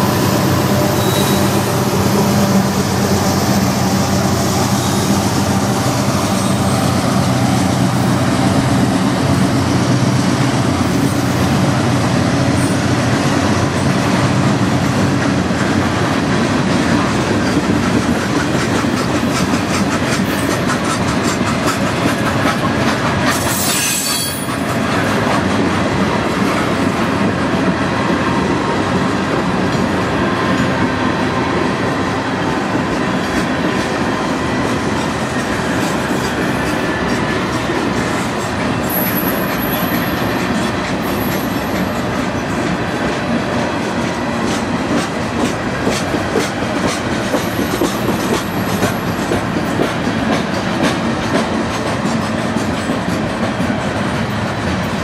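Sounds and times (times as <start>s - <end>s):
train wheels rumbling on rail: 0.0s - 55.0s
thin high squeal: 1.0s - 1.6s
clickety-clack over rail joints: 3.9s - 55.0s.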